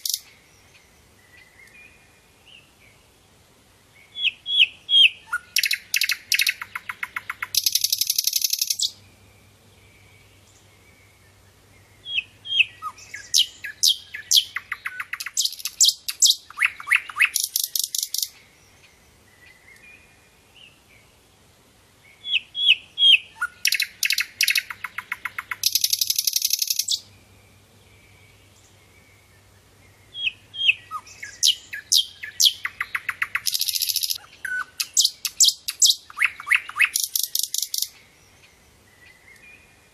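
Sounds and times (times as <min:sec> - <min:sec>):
flycatcher singing: 0:00.0 - 0:00.7, 0:04.1 - 0:09.5, 0:12.0 - 0:18.8, 0:22.2 - 0:27.1, 0:30.1 - 0:39.4.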